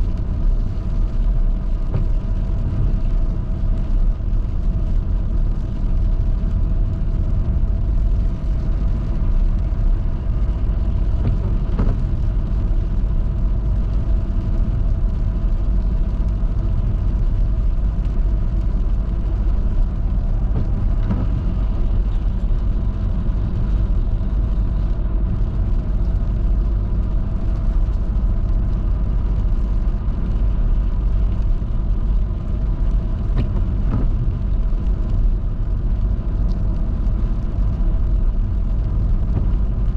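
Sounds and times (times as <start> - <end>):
car tyre and engine rumble: 0.0 - 39.9.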